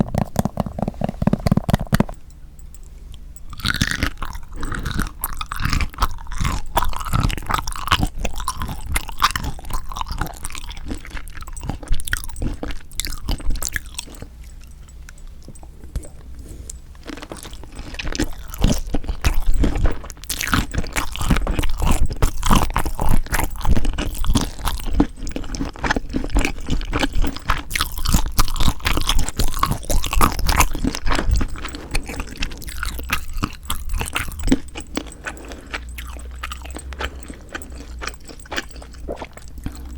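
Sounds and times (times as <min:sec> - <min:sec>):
chewing and crunching shrimp: 0:00.0 - 0:39.9.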